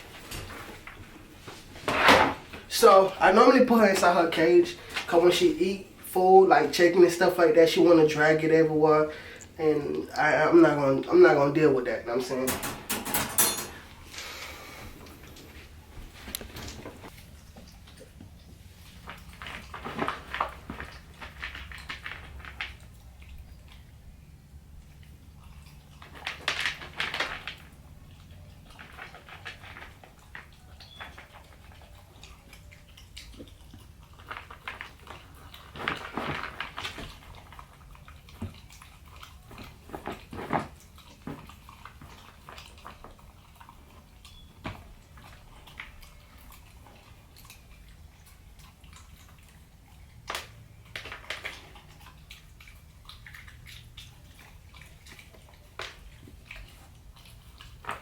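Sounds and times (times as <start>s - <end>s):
puppy chewing meat: 13.8s - 58.0s.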